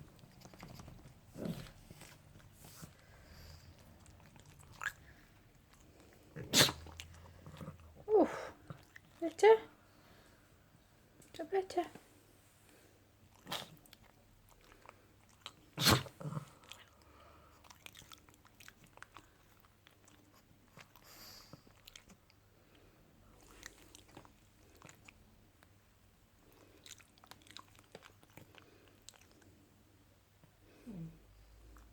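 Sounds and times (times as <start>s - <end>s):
dog licking and chewing: 0.0s - 7.9s, 13.3s - 15.8s, 16.6s - 22.4s, 23.4s - 25.8s, 26.5s - 29.6s.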